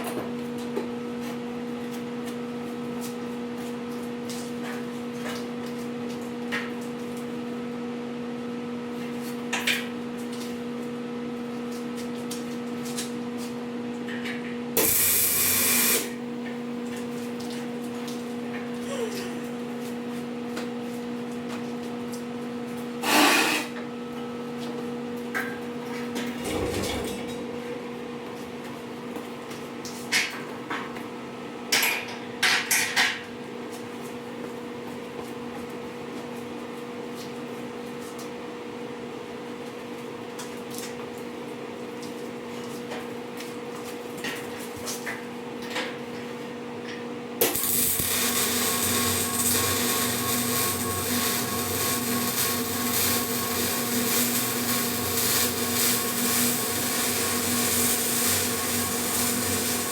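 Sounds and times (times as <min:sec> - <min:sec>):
power tool running: 0:14.8 - 0:16.2, 0:47.4 - 0:59.9
electrical hum: 0:14.8 - 0:21.8, 0:47.4 - 0:59.9.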